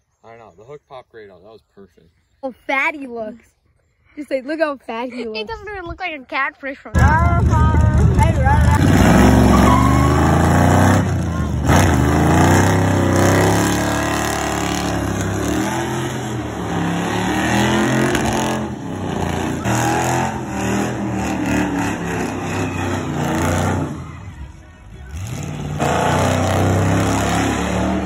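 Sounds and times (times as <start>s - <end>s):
car engine revving: 7.0s - 28.0s.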